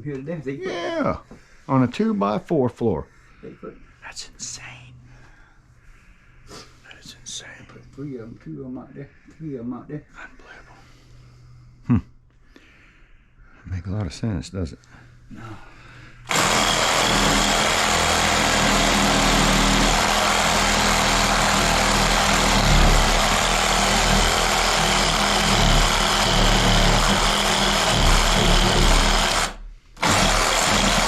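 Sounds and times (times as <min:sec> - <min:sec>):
power tool running: 0:16.3 - 0:31.0.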